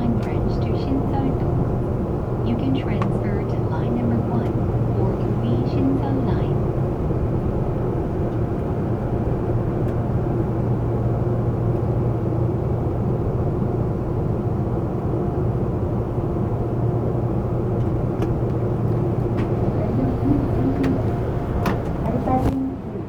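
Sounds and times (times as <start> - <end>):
subway train rumbling: 0.0 - 23.0.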